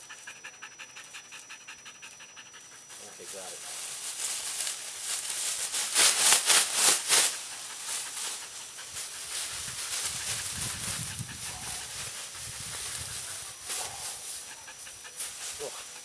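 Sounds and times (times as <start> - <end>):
plastic poncho rustling: 3.5 - 14.3.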